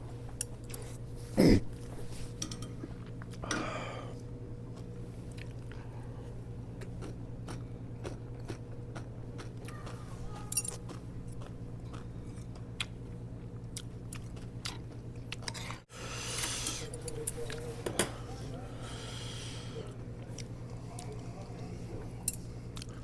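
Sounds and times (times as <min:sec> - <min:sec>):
steady low hum: 0:00.0 - 0:23.0
person chewing food: 0:02.8 - 0:17.6, 0:20.2 - 0:21.6, 0:22.7 - 0:23.0.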